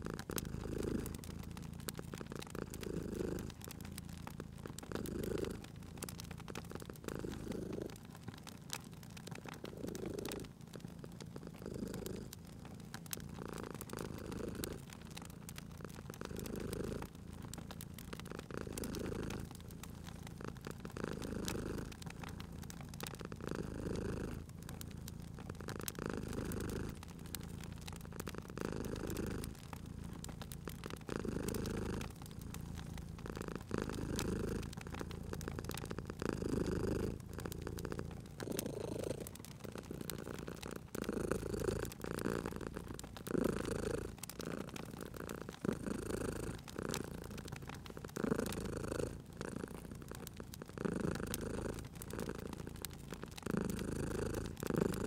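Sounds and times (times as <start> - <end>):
cat purring: 0.0 - 55.0
wood fire crackling: 0.0 - 55.0.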